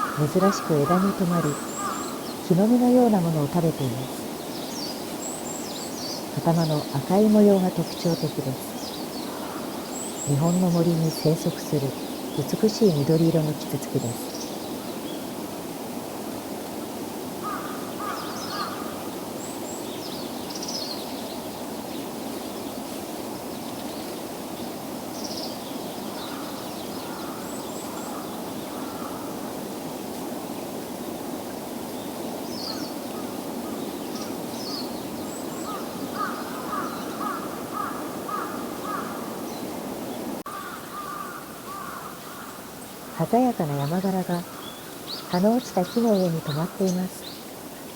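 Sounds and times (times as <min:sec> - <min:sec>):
crows cawing: 0:00.0 - 0:02.3, 0:09.2 - 0:10.0, 0:17.4 - 0:19.1, 0:26.1 - 0:29.5, 0:35.6 - 0:39.5, 0:40.5 - 0:43.2, 0:44.4 - 0:45.2
small birds chirping: 0:00.0 - 0:15.3, 0:17.4 - 0:29.3, 0:32.0 - 0:47.9.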